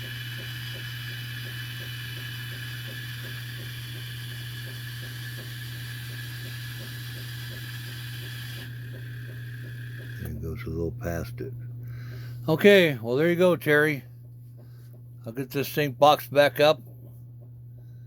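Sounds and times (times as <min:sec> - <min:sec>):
gear train ticking: 0:00.0 - 0:11.6
motor humming: 0:00.0 - 0:18.0.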